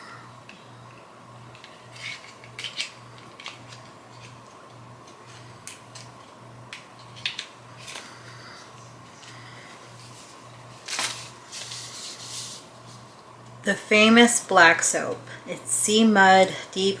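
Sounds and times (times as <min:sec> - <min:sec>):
faint pulsing low hum: 0:00.0 - 0:17.0
small items clicking and tapping: 0:00.4 - 0:08.1.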